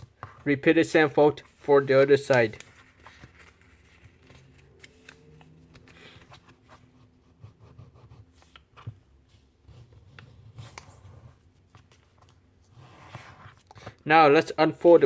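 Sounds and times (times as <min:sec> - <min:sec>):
paper being folded and creased: 0:01.4 - 0:07.0, 0:07.8 - 0:14.0.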